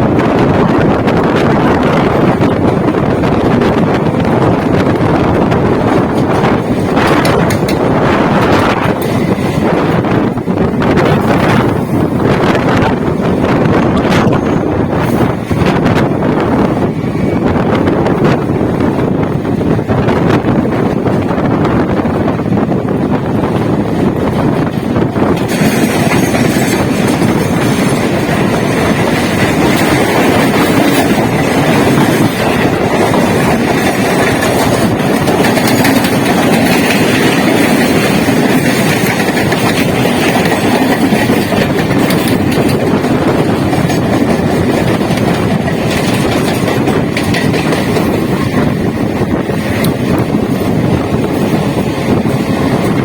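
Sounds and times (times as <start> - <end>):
clickety-clack over rail joints: 0.0 - 53.0
train wheels rumbling on rails: 0.0 - 53.0.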